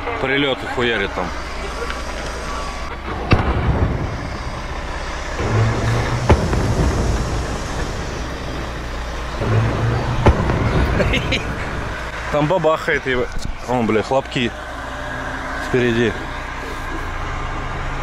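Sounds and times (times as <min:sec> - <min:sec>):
heavy truck running: 0:00.0 - 0:18.0
sharp knocks: 0:03.0 - 0:12.3.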